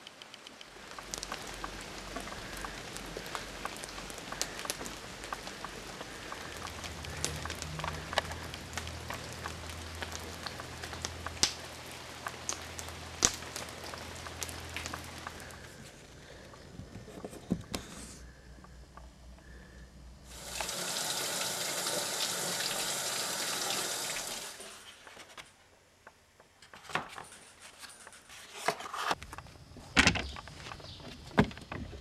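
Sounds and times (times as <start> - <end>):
rain pattering: 0.0 - 17.1, 18.4 - 25.2.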